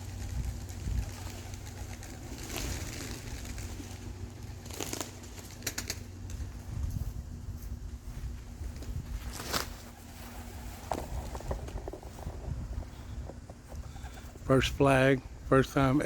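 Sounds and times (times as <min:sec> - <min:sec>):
wind rumble on microphone: 0:00.0 - 0:04.0, 0:06.3 - 0:16.0
pigeons cooing: 0:00.0 - 0:06.1, 0:12.8 - 0:14.5
wings flapping: 0:00.0 - 0:06.6, 0:08.7 - 0:14.4.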